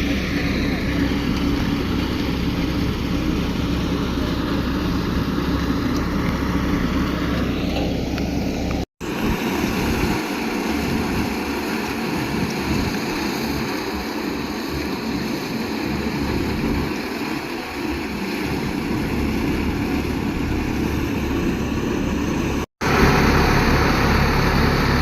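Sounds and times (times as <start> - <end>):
steady noise: 0.0 - 25.0
tractor engine humming: 0.0 - 25.0.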